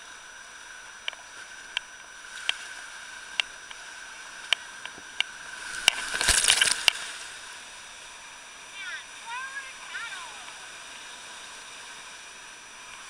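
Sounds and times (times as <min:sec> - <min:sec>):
river water rushing: 0:05.3 - 0:13.0.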